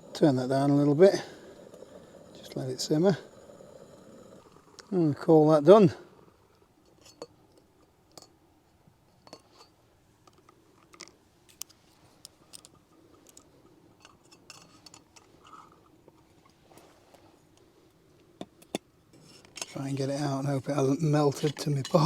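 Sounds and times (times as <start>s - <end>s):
cook pot and lid clinking: 21.3s - 22.0s.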